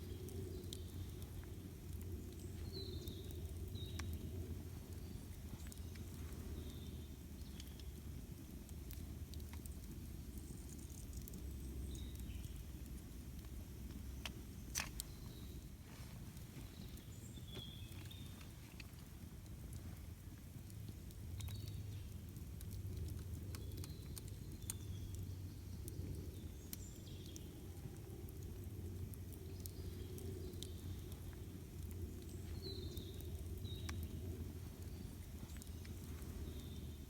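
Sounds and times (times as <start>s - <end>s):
birds chirping faintly: 0.0s - 37.0s
campfire crackling and popping: 0.0s - 37.0s
low steady rumble: 0.0s - 37.0s.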